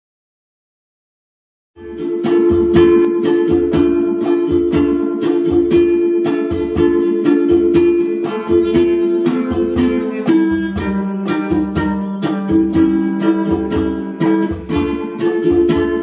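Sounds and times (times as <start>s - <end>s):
ukulele strumming chords: 1.8s - 16.0s.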